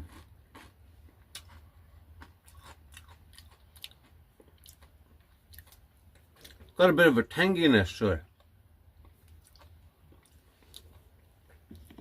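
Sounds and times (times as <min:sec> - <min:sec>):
person chewing crunchy chip: 0:00.0 - 0:06.8, 0:09.0 - 0:12.0.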